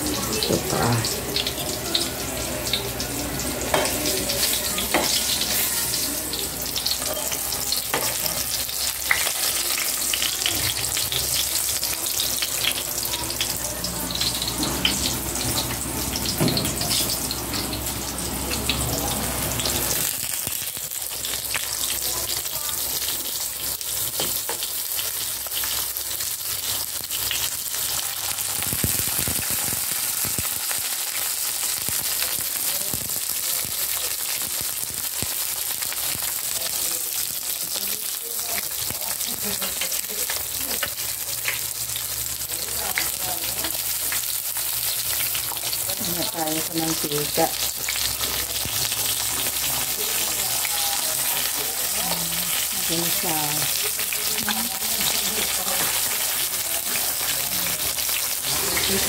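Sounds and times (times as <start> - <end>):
eggplant frying in hot oil: 0.0 - 59.0
oil crackles and clicks: 19.9 - 59.0.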